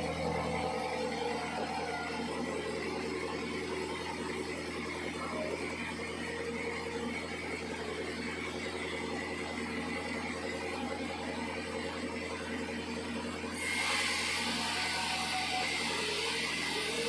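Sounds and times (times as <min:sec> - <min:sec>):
sawmill machinery humming: 0:00.0 - 0:17.0.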